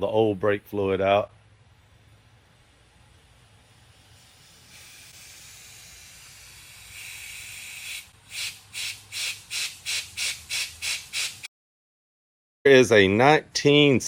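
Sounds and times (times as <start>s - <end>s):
compressed air hissing and puffing: 2.6s - 11.5s.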